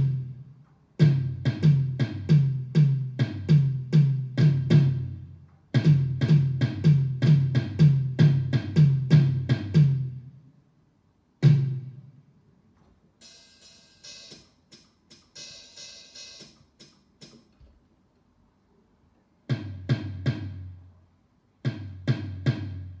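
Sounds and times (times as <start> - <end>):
cymbal-like strokes: 13.2 - 16.9.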